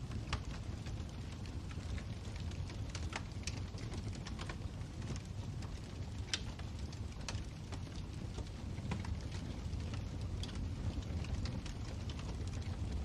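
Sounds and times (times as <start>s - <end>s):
fire pops and snaps: 0.0s - 13.0s
wood fire crackling: 0.0s - 13.0s.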